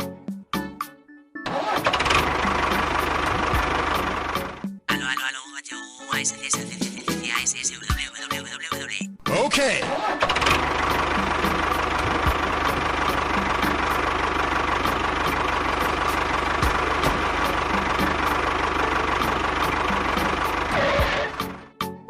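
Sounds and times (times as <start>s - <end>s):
small engine running with rattle: 1.7s - 4.6s, 10.2s - 21.6s.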